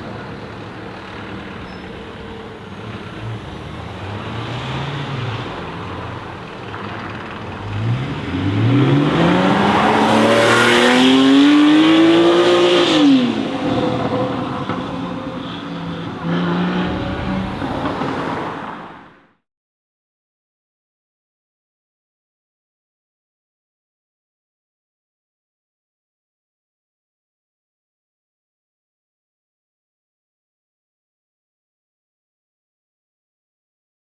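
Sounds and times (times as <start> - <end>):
car engine accelerating hard: 0.0 - 19.2.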